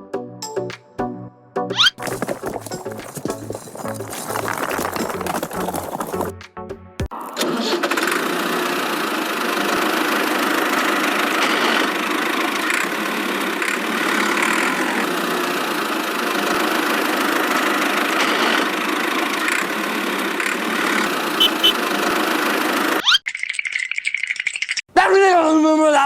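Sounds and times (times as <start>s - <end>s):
small motor running: 20.9s - 21.8s.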